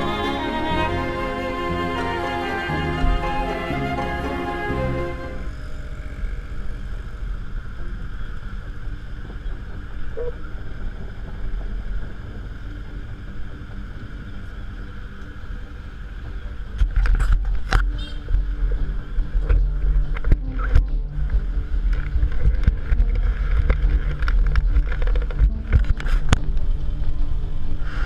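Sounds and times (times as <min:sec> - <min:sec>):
street traffic: 0:00.0 - 0:28.0
motorcycle engines idling: 0:04.8 - 0:25.7.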